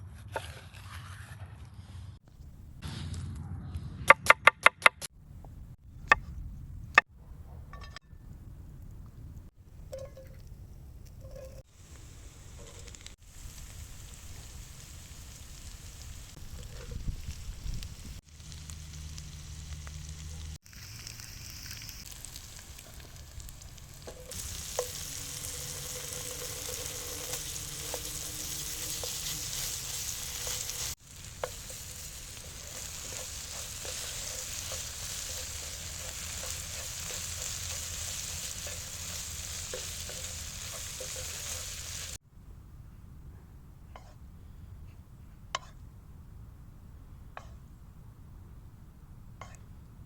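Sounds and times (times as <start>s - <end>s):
sausage sizzling in a pan: 11.6s - 42.2s.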